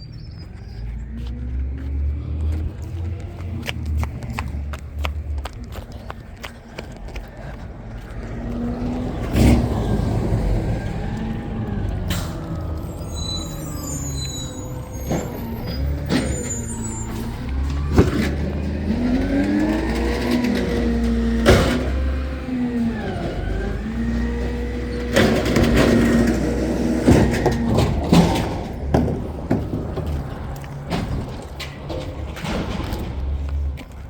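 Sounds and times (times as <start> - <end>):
diesel engine revving: 0.0 - 34.0
sharp bangs and knocks: 14.5 - 22.4, 24.1 - 33.8.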